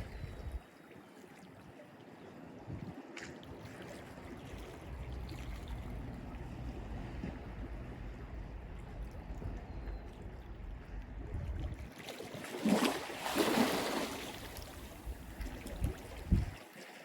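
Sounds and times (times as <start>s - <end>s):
low rumble: 4.6s - 11.9s
sea waves washing on shore: 11.8s - 17.0s.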